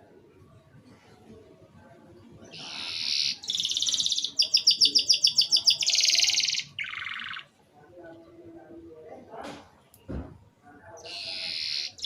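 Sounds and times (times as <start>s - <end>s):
canary singing trills: 2.5s - 7.5s, 11.0s - 12.0s.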